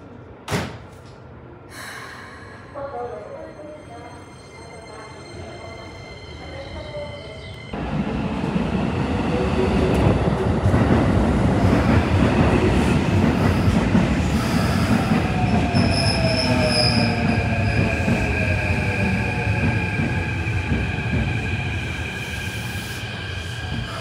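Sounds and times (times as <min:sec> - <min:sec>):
train rumbling on rails: 0:01.3 - 0:24.0.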